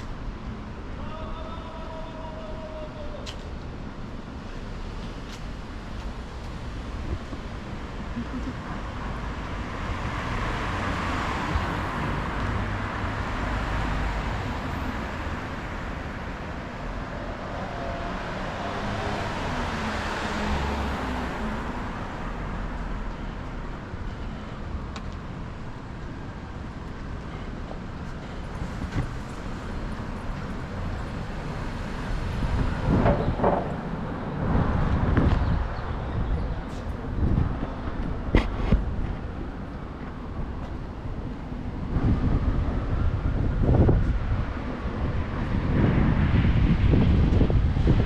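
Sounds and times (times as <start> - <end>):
low traffic rumble: 0.0 - 48.0
vehicles passing: 0.0 - 48.0.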